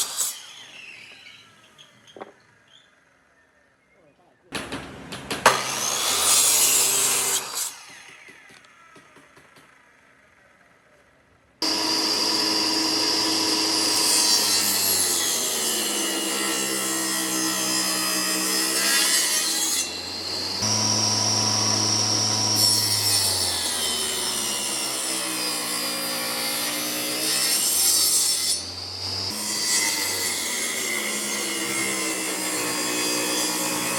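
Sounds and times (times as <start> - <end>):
power tool cutting wood: 0.0 - 1.4, 5.5 - 8.9, 11.6 - 33.9.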